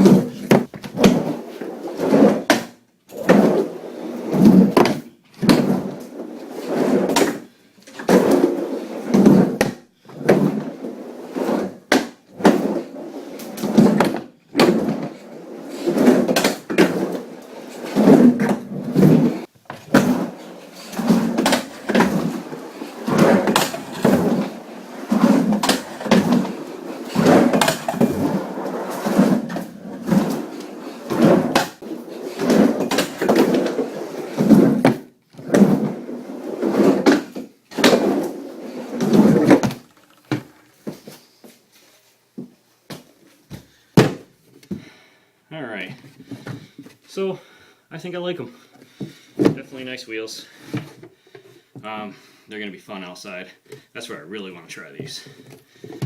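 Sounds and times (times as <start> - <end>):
skateboard rolling on a ramp: 0.0 - 41.0.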